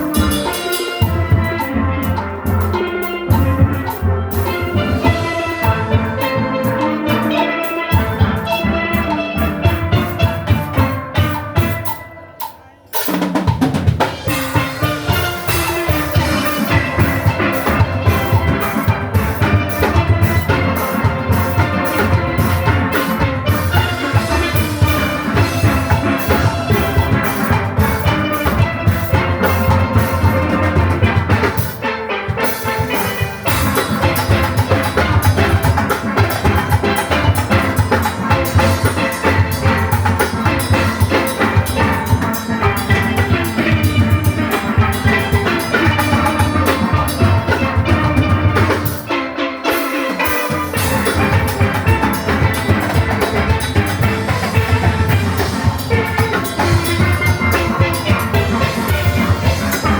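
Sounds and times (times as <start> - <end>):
drum kit and percussion: 0.0 - 59.9
steelpans playing: 0.0 - 59.9.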